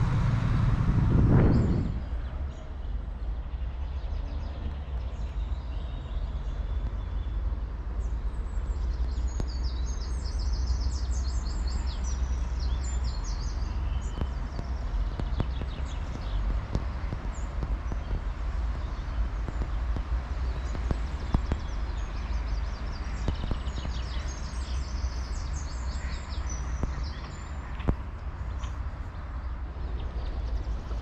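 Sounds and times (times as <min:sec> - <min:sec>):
steady low rumble: 0:00.0 - 0:31.0
small birds chirping and trilling: 0:01.4 - 0:31.0.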